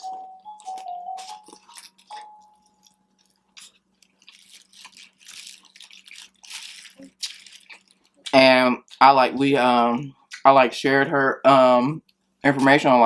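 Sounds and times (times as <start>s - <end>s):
wet chewing and mouth smacking: 0.0s - 9.0s.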